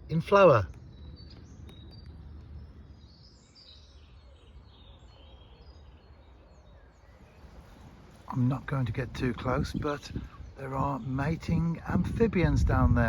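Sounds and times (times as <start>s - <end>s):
faint birdsong: 0.0s - 13.0s
low background rumble: 7.1s - 13.0s.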